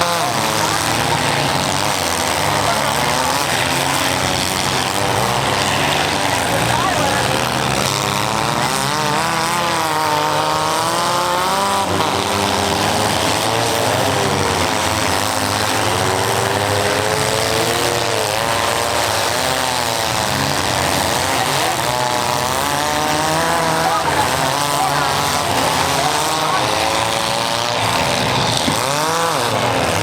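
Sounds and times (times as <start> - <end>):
car engines revving: 0.0 - 30.0.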